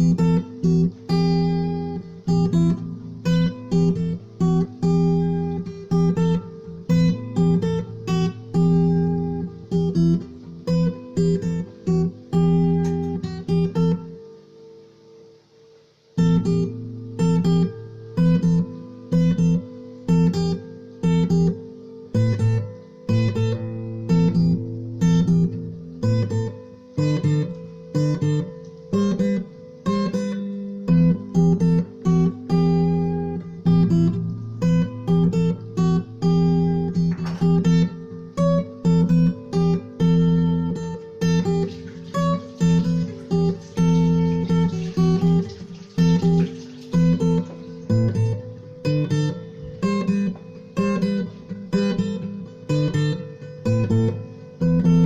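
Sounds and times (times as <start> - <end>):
acoustic guitar strumming: 0.0 - 55.0.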